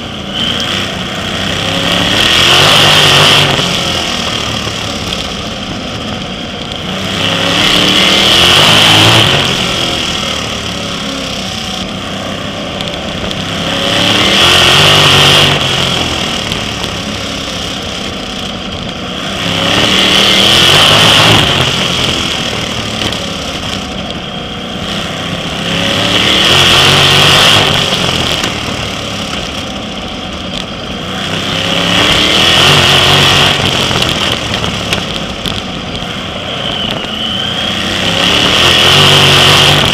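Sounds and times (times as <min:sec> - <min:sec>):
racing car engines: 0:00.0 - 0:39.9.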